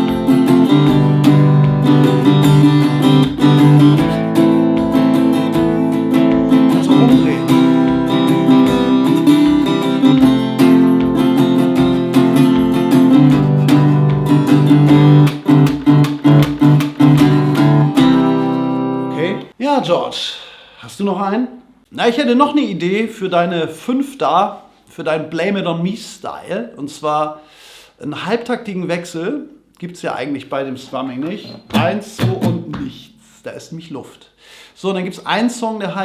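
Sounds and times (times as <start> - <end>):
acoustic guitar strumming: 0.0 - 19.5, 31.2 - 33.3.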